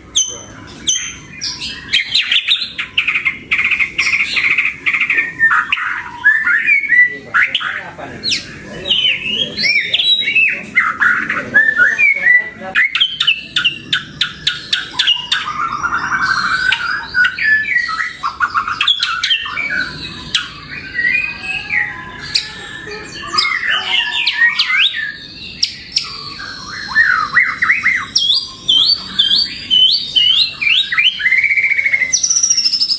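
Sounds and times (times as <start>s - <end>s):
bird singing varied song: 0.0s - 32.9s.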